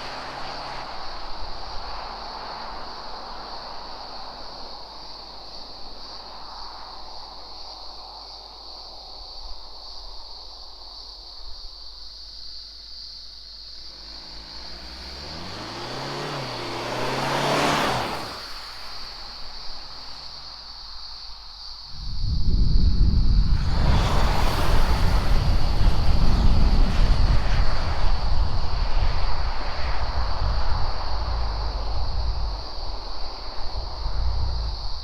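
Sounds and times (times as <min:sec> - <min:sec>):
diesel car engine accelerating: 0:00.0 - 0:04.3, 0:13.4 - 0:35.0
sudden loud rumble: 0:21.9 - 0:35.0.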